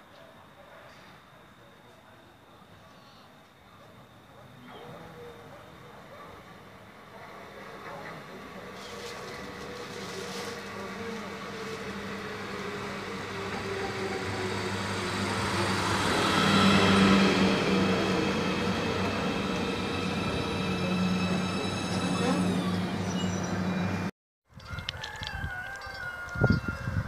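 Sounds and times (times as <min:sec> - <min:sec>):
passenger train passing: 0:04.8 - 0:24.1
high whining tones: 0:09.0 - 0:24.1.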